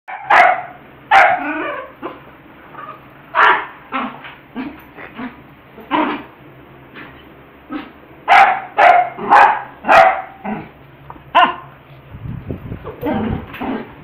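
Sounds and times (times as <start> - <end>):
dog barking: 0.1 - 1.5, 3.4 - 3.8, 8.3 - 10.4, 11.3 - 11.7
dog yipping: 0.1 - 2.2, 3.4 - 4.1, 8.3 - 10.4, 11.4 - 11.7.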